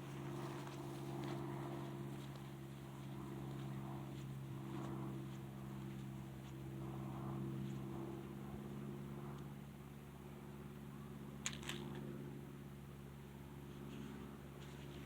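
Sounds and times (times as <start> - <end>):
footsteps on dirt trail: 0.0 - 8.4
steady low hum: 0.0 - 15.0.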